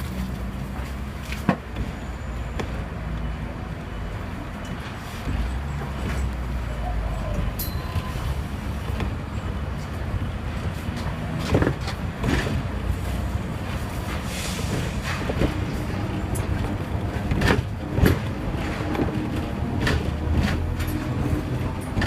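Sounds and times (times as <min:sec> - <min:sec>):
tram low rumble: 0:00.0 - 0:22.0
sharp tram clacks: 0:04.5 - 0:22.0.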